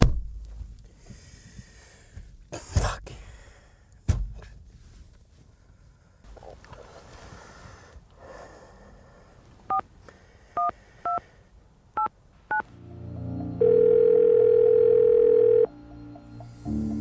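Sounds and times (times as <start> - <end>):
phone keypad beeps: 10.6 - 11.2, 13.6 - 15.7
phone ringback tone: 13.4 - 15.8.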